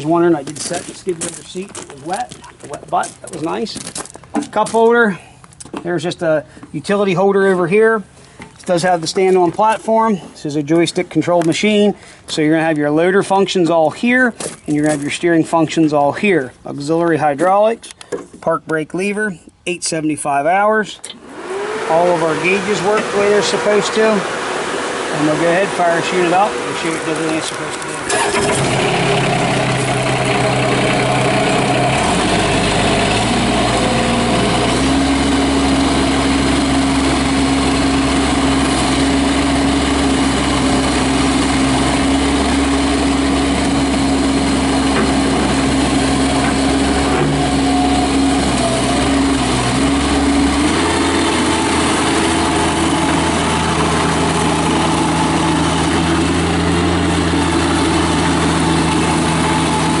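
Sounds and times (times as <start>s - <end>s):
diesel engine running: 21.2s - 60.0s.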